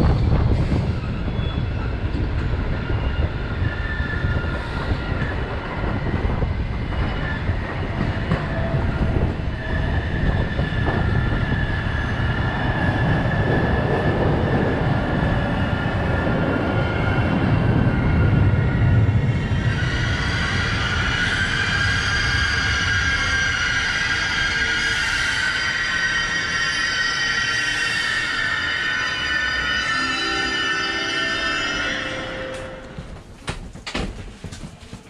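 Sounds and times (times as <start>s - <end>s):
train rumbling: 0.0s - 35.0s
high squeal in several tones: 19.3s - 32.9s.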